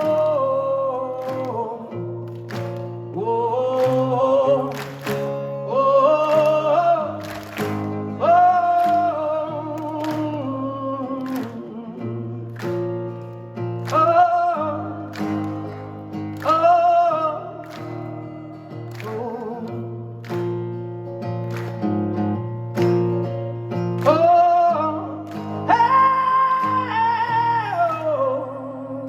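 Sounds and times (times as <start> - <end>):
man singing long notes: 0.0 - 2.0, 3.2 - 5.0, 5.6 - 12.6.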